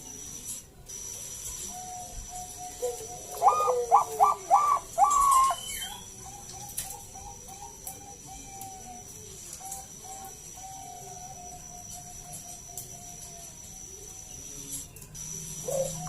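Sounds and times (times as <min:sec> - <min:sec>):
dove cooing: 0:01.7 - 0:13.2, 0:15.4 - 0:16.0.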